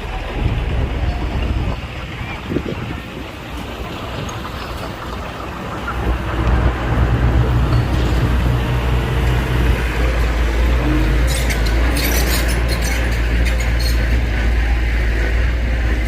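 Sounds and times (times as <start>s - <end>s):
heavy diesel engine revving: 5.8s - 16.0s.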